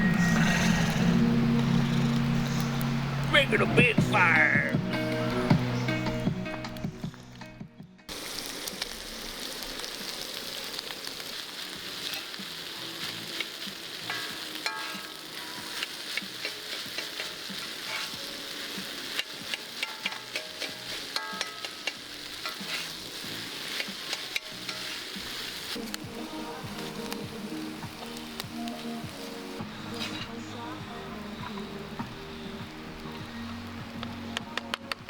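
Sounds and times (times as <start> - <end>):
food sizzling in a pan: 8.1 - 34.3
utensil scraping a pan: 14.1 - 18.2, 19.1 - 25.7.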